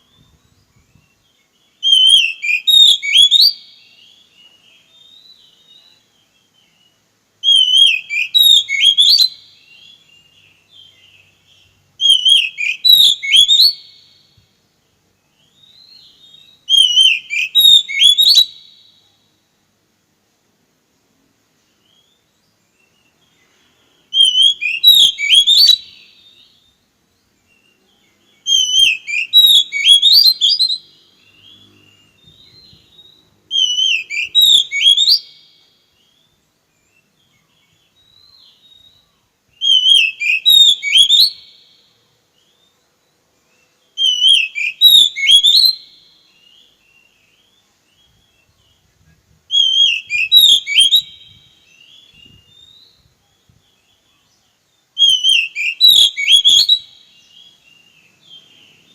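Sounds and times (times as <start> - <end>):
songbird whistling: 0.0 - 14.5, 15.2 - 19.2, 21.7 - 58.9.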